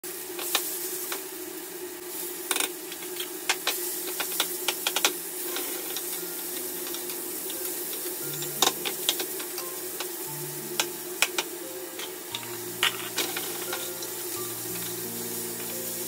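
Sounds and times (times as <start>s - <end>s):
food sizzling in a hot pan: 0.0s - 16.0s
crackles and pops of frying: 0.1s - 16.0s.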